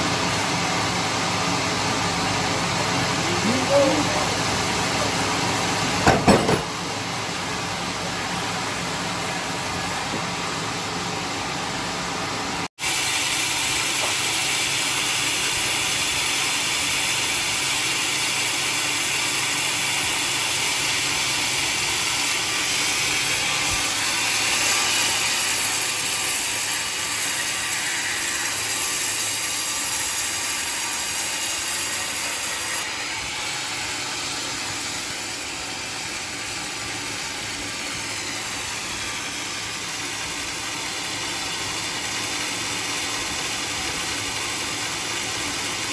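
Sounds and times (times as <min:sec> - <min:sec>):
band saw cutting log: 0:00.0 - 0:45.9.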